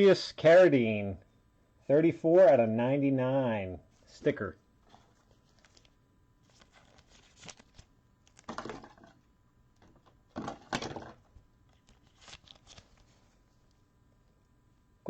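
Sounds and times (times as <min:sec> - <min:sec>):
trading cards rustling: 0:03.9 - 0:09.2, 0:09.8 - 0:13.8.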